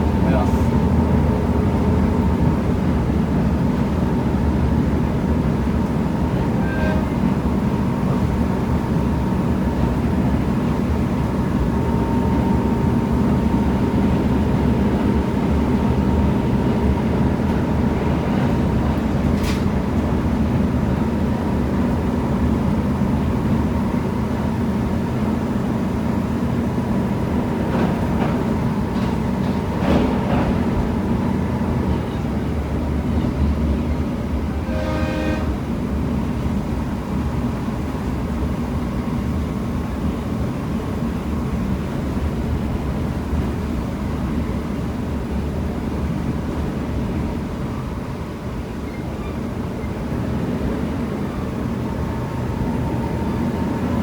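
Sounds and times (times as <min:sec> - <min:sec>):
diesel railcar engine droning: 0:00.0 - 0:54.0
short horn tone: 0:06.6 - 0:07.2, 0:34.6 - 0:35.6.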